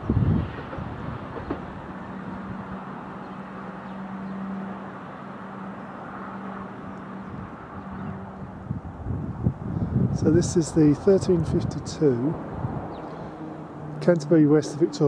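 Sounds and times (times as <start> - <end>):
train rumbling: 0.0 - 9.6.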